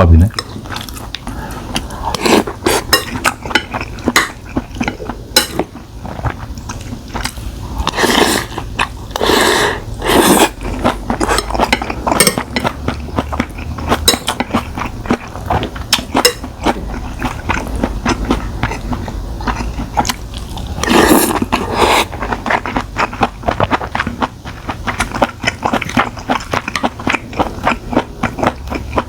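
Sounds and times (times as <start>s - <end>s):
chewing and biting: 10.5s - 29.0s.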